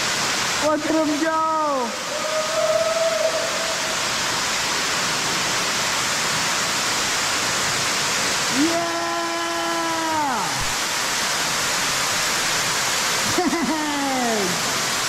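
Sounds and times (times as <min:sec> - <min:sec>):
steady rushing hissing noise: 0:00.0 - 0:15.0
man shouting yeah: 0:08.5 - 0:10.6.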